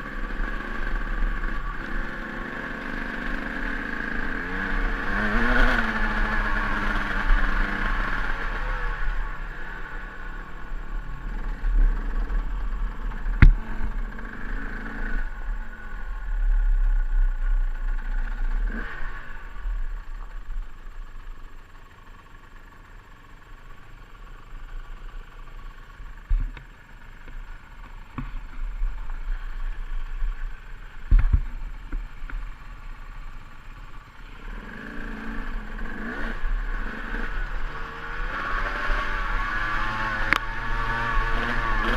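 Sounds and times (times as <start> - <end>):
dirt bike engine at low revs: 0.0 - 41.9
bike knocking on rough ground: 13.3 - 13.9, 26.2 - 28.8, 31.0 - 32.6.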